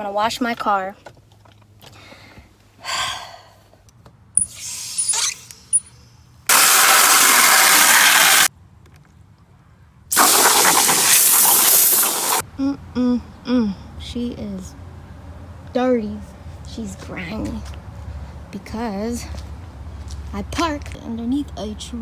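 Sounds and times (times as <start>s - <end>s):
water spraying from hose nozzle: 4.4s - 5.5s, 6.5s - 8.5s, 10.1s - 12.4s.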